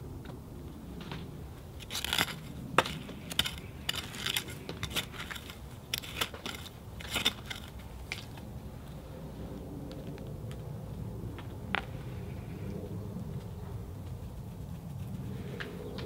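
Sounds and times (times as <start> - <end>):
hoe crunching and scraping soil: 1.1 - 8.9.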